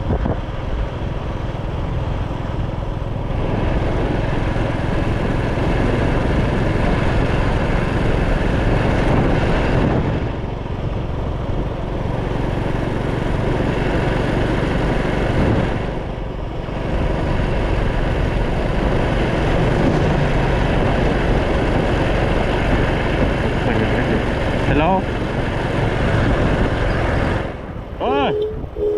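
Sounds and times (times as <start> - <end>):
wind rushing over microphone: 0.0 - 2.2, 3.1 - 28.9.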